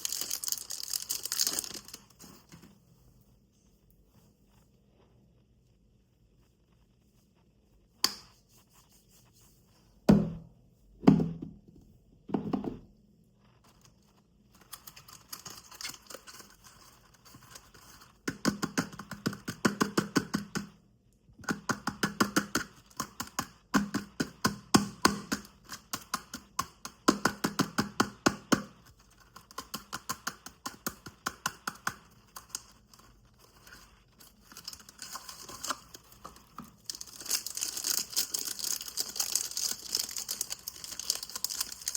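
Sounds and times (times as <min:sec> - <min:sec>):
crisp crunching of soap: 0:00.0 - 0:02.2, 0:31.8 - 0:41.9.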